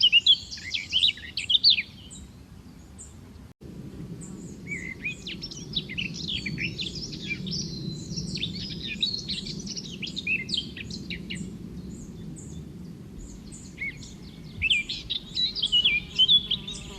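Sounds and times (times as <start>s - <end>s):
birds chirping and calling: 0.0s - 3.4s, 4.3s - 16.9s.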